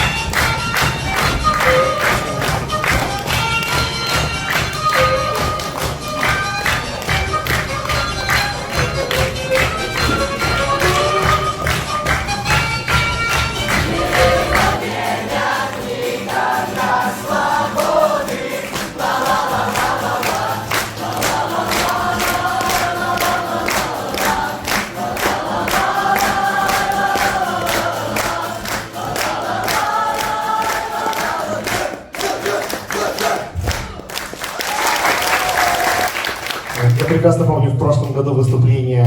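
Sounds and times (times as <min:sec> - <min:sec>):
group singing together: 0:00.0 - 0:12.3, 0:13.2 - 0:34.5
musical accompaniment with percussive beat: 0:00.0 - 0:31.1.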